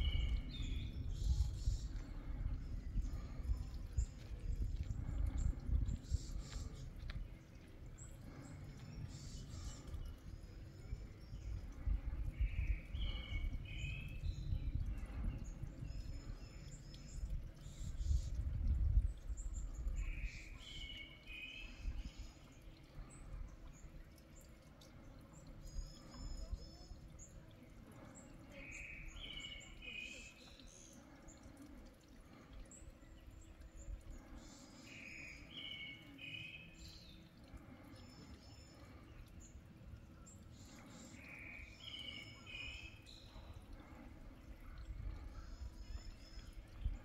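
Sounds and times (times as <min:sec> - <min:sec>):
low wind noise: 0:00.0 - 0:20.9, 0:43.0 - 0:47.0.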